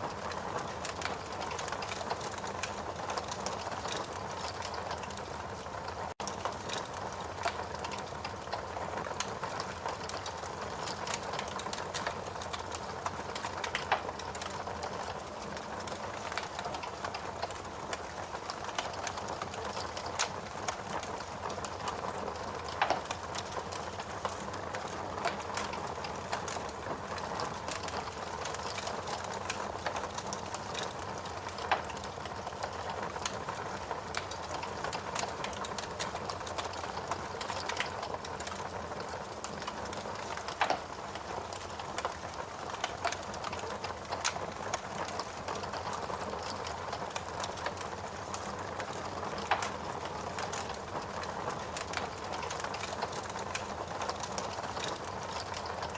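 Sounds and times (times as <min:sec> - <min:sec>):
wood fire crackling: 0:00.0 - 0:55.9
sharp pops from fire: 0:40.4 - 0:40.8.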